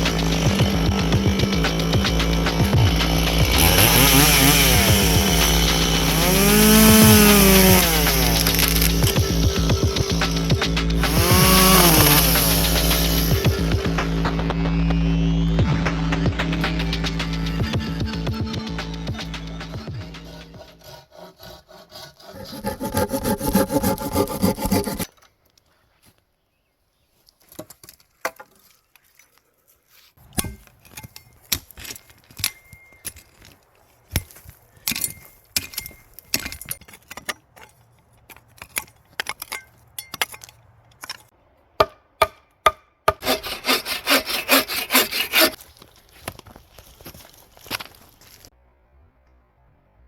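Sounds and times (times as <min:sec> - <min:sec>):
saw cutting through wood: 0:00.0 - 0:25.1, 0:43.1 - 0:45.6.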